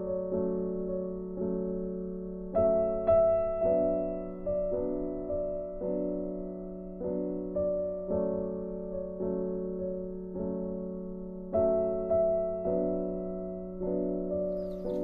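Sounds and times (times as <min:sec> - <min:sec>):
gentle solo piano: 0:00.0 - 0:15.0.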